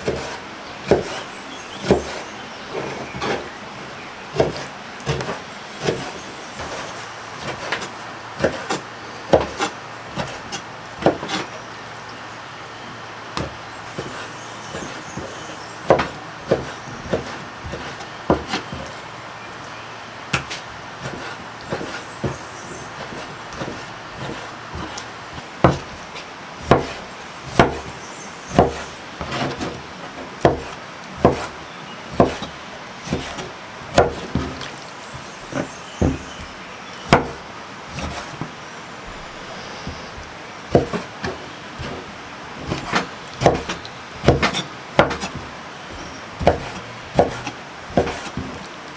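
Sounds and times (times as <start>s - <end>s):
blade chopping wood: 0.0s - 2.3s, 4.3s - 11.5s, 13.4s - 19.0s, 20.3s - 38.6s, 39.8s - 48.7s
sharp knocks on wood: 13.4s - 19.0s, 23.0s - 26.0s, 26.6s - 29.8s, 30.4s - 32.5s, 33.1s - 38.5s, 39.8s - 42.0s, 42.6s - 48.6s.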